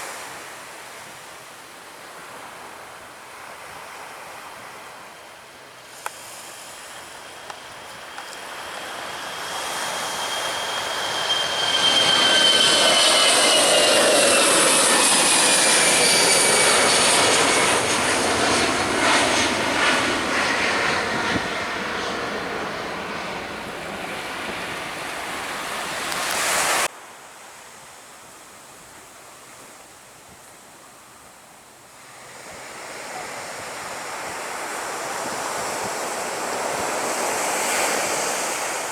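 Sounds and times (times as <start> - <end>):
jet airliner passing overhead: 5.2 - 26.9, 32.0 - 38.9.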